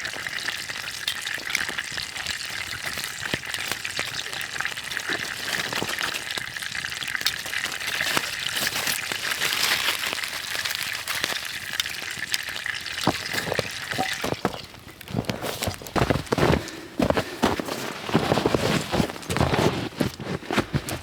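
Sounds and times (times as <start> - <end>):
food sizzling over campfire: 0.0 - 16.4
pops and crackles: 2.6 - 21.0.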